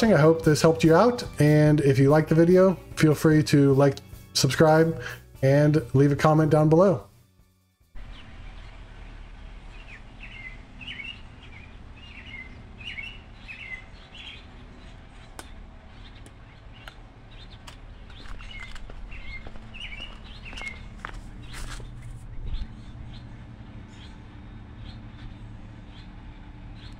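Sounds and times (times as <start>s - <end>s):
low outdoor hum: 0.0s - 7.1s, 7.9s - 26.9s
small bird chirping: 8.0s - 26.9s
sharp light clicks: 15.3s - 15.6s.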